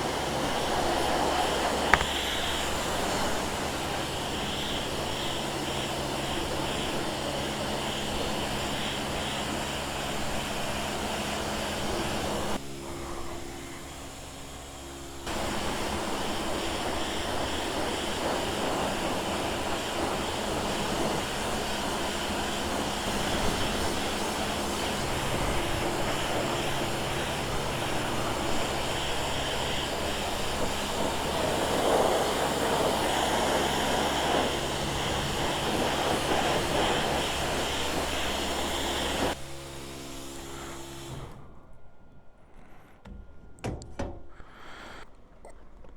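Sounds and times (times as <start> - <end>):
wind rush: 15.3 - 39.4.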